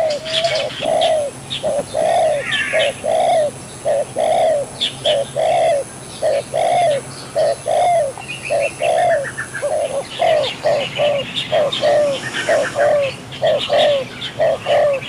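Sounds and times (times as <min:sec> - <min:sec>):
higher bird chirps: 0:00.0 - 0:15.0
low arched bird calls: 0:00.0 - 0:15.0.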